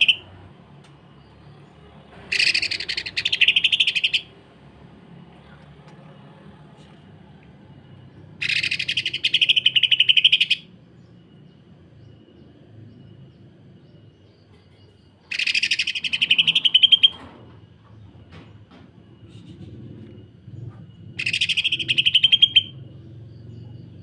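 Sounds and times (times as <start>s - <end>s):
bird song rapid rattling notes: 1.2s - 4.4s, 8.3s - 11.4s, 14.5s - 17.2s, 20.6s - 23.8s.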